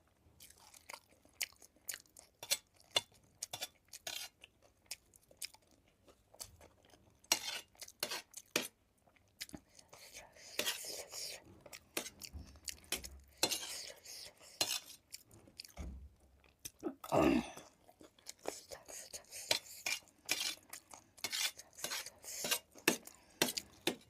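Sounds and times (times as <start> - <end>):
chewing and crunching: 0.0 - 10.7, 11.3 - 16.8, 17.6 - 24.0
spoon scraping a plate: 7.3 - 8.7, 10.4 - 15.0, 19.3 - 20.6, 21.2 - 24.0.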